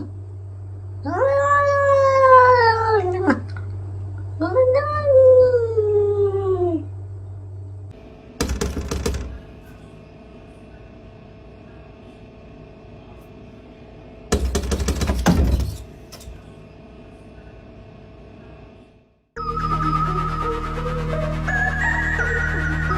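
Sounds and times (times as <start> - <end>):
faint steady hum: 0.0 - 22.9
rapid clattering: 8.4 - 9.6, 14.3 - 16.4.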